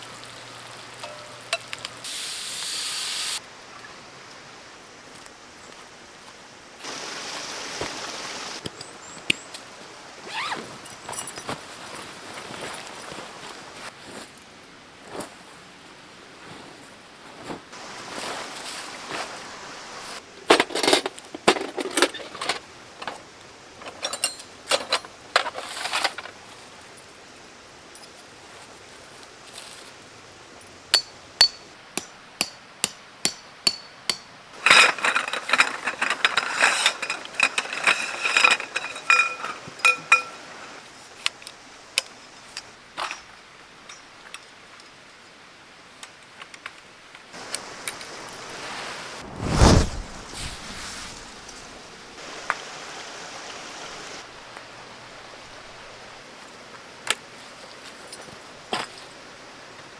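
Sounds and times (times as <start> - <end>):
metal gear clinking: 34.6 - 40.5
metallic clatter: 34.6 - 40.6.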